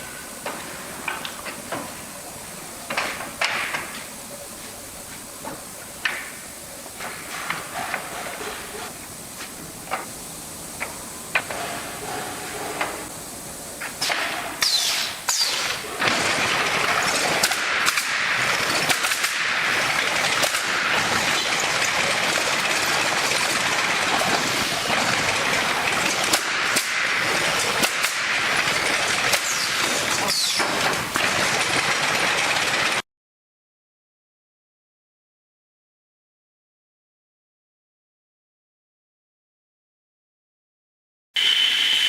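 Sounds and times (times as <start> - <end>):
steady noisy hiss: 0.0 - 33.0
nailing machine clattering: 14.0 - 33.0.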